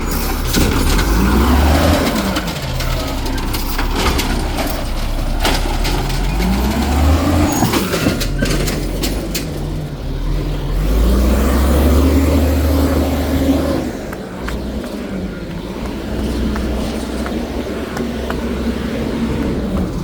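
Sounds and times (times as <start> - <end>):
diesel engine revving: 0.0 - 20.0
garbage packer compacting: 0.0 - 20.0.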